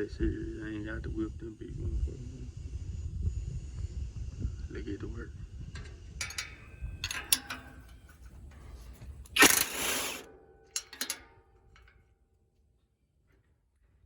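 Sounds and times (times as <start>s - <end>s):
sharp metallic tool clicks: 6.2s - 7.9s, 9.3s - 11.2s.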